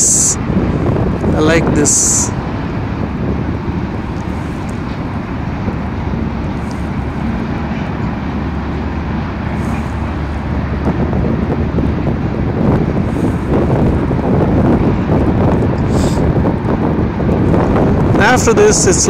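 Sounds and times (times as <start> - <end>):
freight train rumbling past: 0.0 - 19.0.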